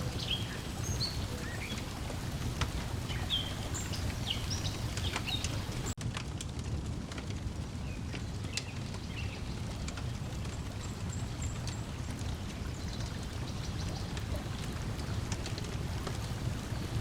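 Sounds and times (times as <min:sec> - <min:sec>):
bird chirps: 0:00.0 - 0:05.9
lapping water: 0:00.0 - 0:06.0
wood fire crackling: 0:00.0 - 0:17.0.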